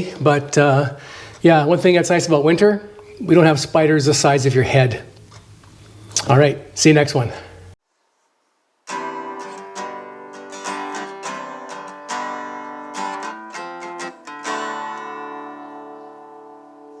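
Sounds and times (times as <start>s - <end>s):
acoustic guitar picking: 8.9s - 17.0s.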